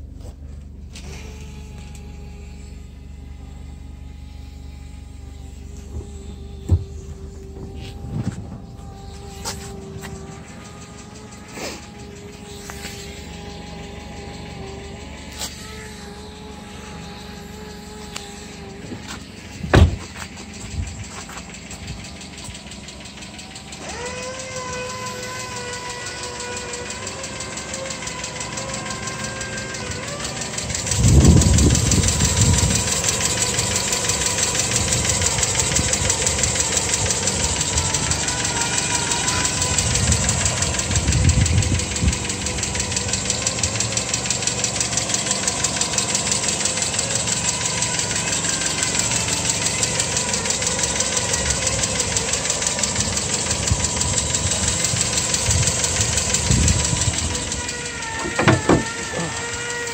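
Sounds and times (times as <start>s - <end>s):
car engine idling: 0.0s - 59.9s
fast ticking clatter from engine: 0.9s - 59.9s
sharp thump: 19.6s - 20.2s, 58.2s - 59.3s.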